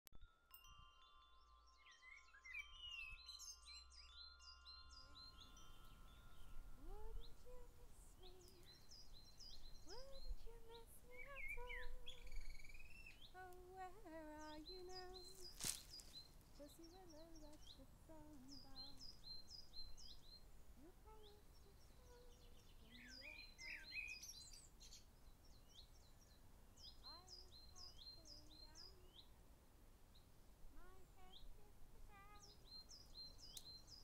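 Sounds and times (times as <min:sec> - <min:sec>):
bird chirps and trills: 0:00.5 - 0:29.4, 0:30.1 - 0:34.0.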